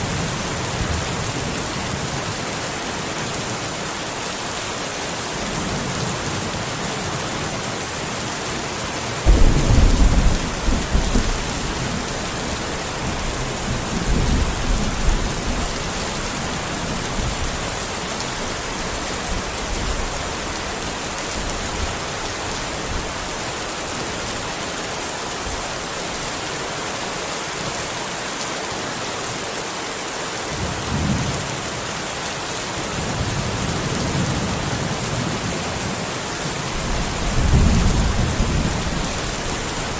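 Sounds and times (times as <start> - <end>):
steady rain: 0.0 - 39.9
rumble of thunder: 9.3 - 15.9, 36.8 - 39.9.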